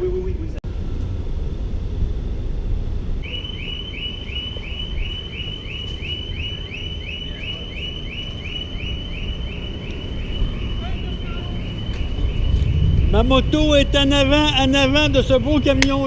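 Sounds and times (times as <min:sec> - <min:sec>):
steady low rumble: 0:00.0 - 0:07.0, 0:08.0 - 0:16.0
electronic alarm chirping: 0:03.2 - 0:15.2.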